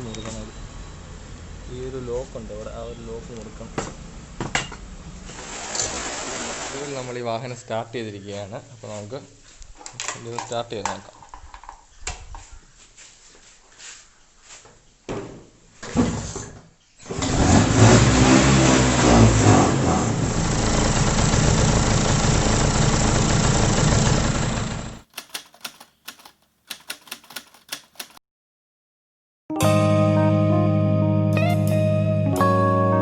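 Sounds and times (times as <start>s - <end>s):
scooter engine starting and revving: 17.0s - 25.1s
sharp clicks: 25.0s - 28.2s.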